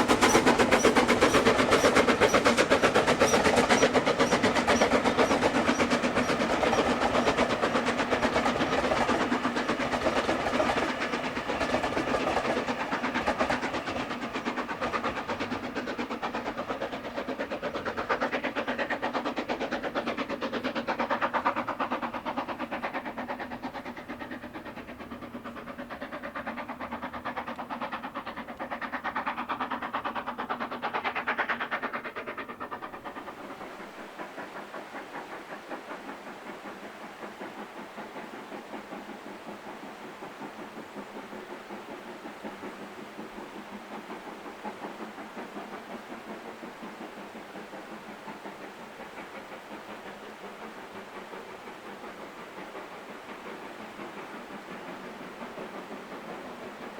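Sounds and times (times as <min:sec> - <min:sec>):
train rattling past on rails: 0:00.0 - 0:56.9.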